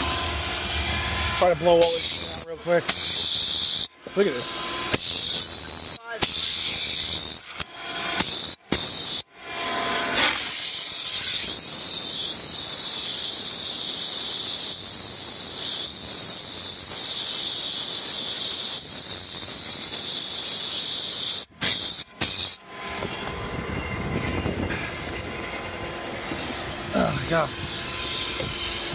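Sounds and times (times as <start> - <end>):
steam gun hissing: 0.0 - 9.3, 10.1 - 23.1.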